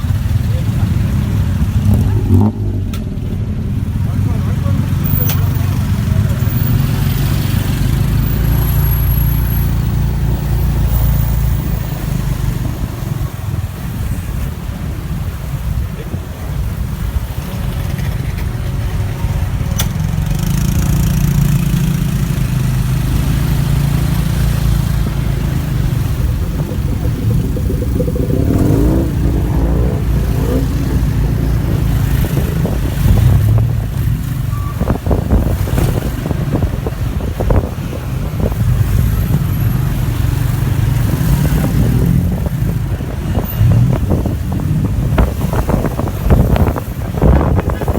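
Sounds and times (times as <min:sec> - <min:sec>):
road and wind noise: 0:00.0 - 0:47.9
sound rising and falling in pitch: 0:23.8 - 0:33.7.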